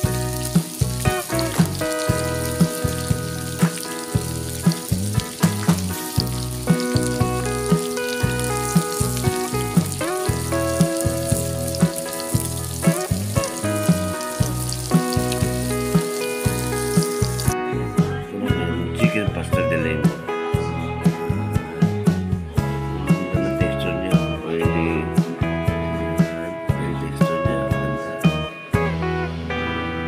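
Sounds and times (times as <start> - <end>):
chicken sizzling in a wok: 0.0 - 17.6
background music with steady beat: 0.0 - 30.0.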